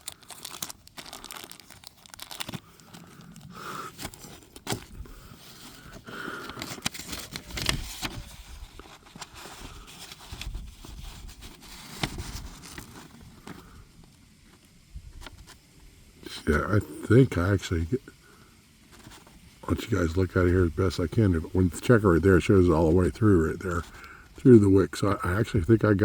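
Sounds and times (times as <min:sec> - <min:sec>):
paper rustling and crinkling: 0:00.0 - 0:15.6, 0:18.8 - 0:26.0.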